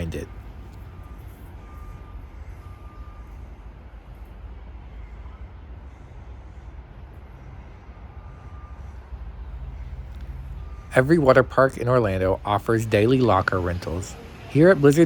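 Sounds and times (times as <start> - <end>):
low rumble: 9.3 - 14.0.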